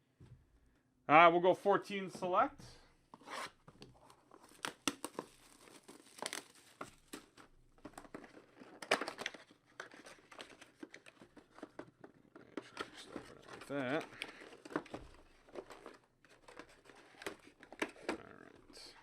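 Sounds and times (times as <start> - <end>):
plastic wrapping crinkling and tearing: 4.2 - 11.6.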